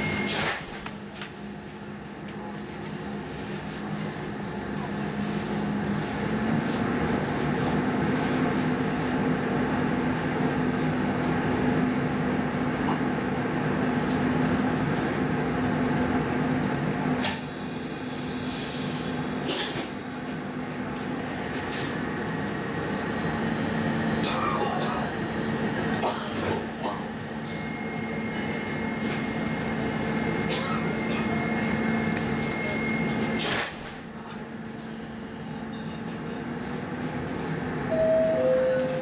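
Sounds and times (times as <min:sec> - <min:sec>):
train electrical hum: 0:00.0 - 0:39.0.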